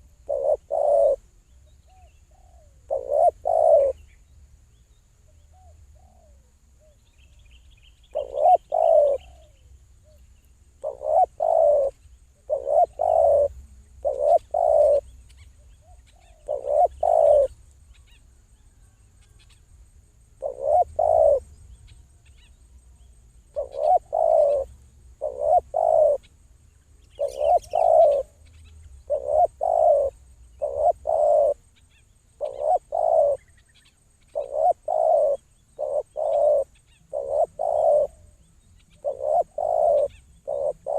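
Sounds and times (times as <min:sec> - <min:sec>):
dove cooing: 0:00.0 - 0:01.2, 0:01.9 - 0:04.0, 0:08.1 - 0:09.6, 0:10.8 - 0:17.6, 0:20.4 - 0:21.5, 0:23.5 - 0:26.3, 0:27.2 - 0:28.4, 0:29.0 - 0:31.6, 0:32.4 - 0:33.6, 0:34.3 - 0:40.9
faint small-bird chirps: 0:00.0 - 0:40.9.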